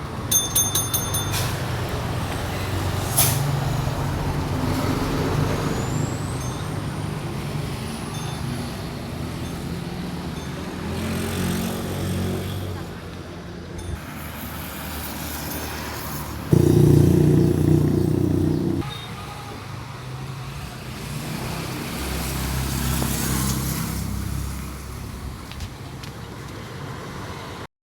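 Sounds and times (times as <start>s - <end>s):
passing vehicle engine: 16.5s - 18.8s
vehicle engine running close by: 16.5s - 18.8s.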